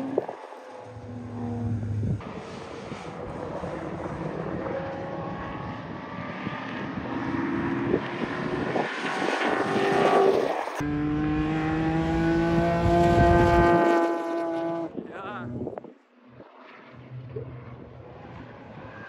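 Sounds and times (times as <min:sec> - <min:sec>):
car engine pulling hard: 0:00.0 - 0:15.0.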